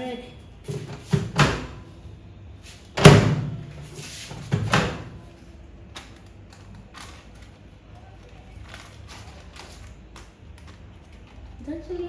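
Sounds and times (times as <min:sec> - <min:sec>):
microwave door clacking open: 0:00.8 - 0:01.8, 0:03.0 - 0:03.7, 0:04.5 - 0:05.2.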